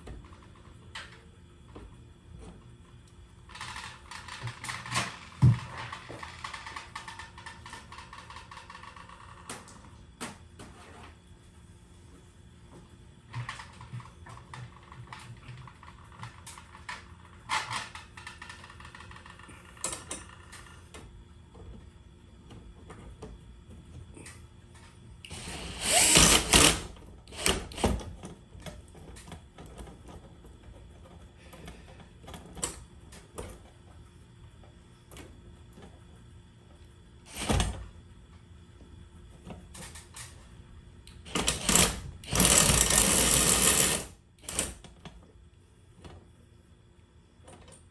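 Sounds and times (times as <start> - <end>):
power drill bursts: 25.3 - 28.0, 37.3 - 37.7, 41.3 - 44.6.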